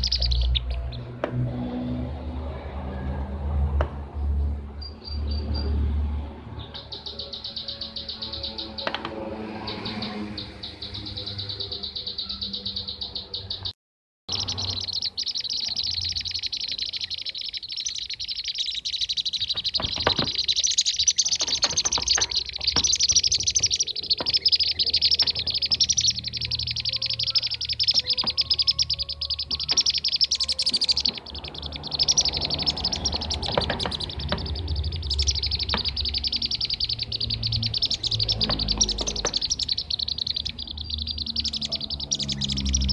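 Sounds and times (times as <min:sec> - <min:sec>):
bee-eater chirping calls: 0:00.0 - 0:01.0, 0:14.3 - 0:42.9.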